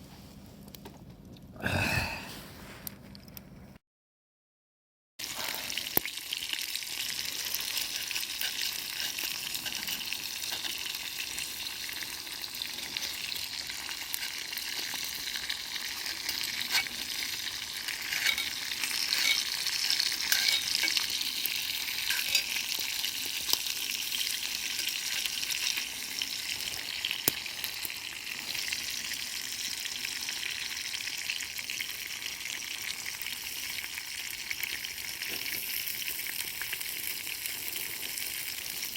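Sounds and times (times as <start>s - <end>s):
food sizzling in a pan: 5.2s - 38.9s.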